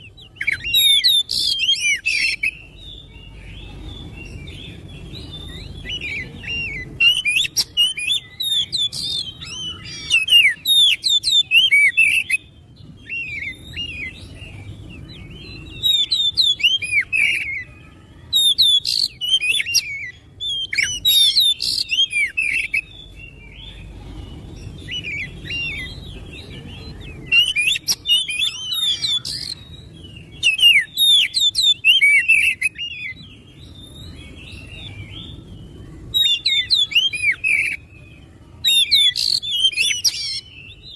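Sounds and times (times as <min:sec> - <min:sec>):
bird singing whistles and chirps: 0:00.0 - 0:40.9.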